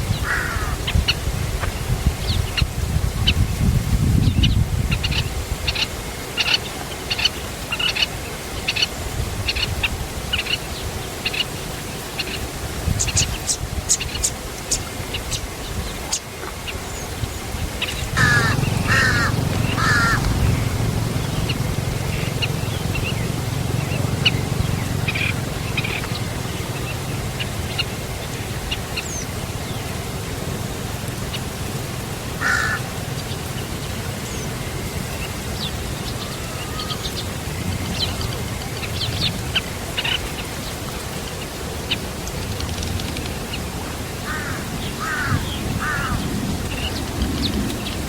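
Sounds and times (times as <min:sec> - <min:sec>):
harsh rasping bird calls: 0:00.1 - 0:00.9, 0:17.9 - 0:28.4, 0:32.4 - 0:33.4, 0:44.2 - 0:47.0
steady low rumble: 0:17.9 - 0:35.8.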